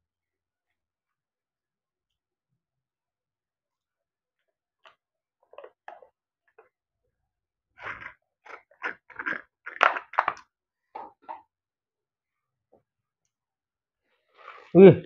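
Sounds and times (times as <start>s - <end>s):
person chewing: 7.8s - 10.4s.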